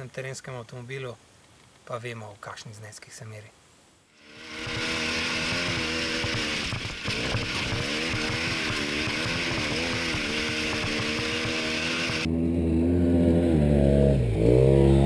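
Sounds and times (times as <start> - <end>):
steady hiss: 0.0 - 6.4
utility vehicle engine running: 4.2 - 15.0.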